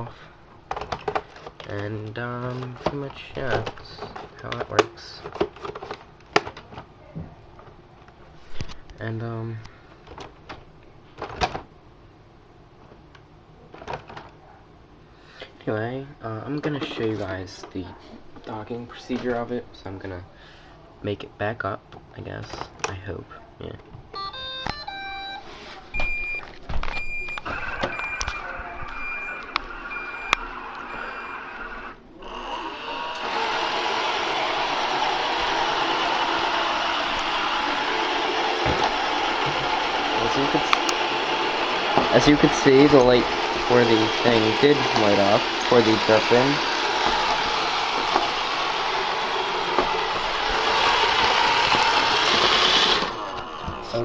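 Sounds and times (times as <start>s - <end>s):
robot vacuum beeping: 27.0s - 33.8s
vacuum motor and brushes running: 32.3s - 54.0s.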